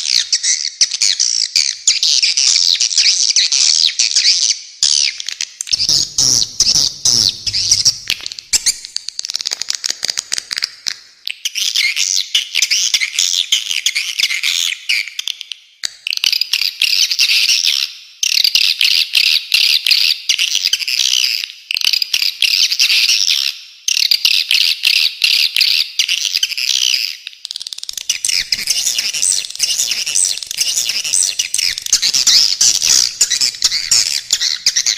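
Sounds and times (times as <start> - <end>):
swiftlets twittering: 28.1 - 34.9.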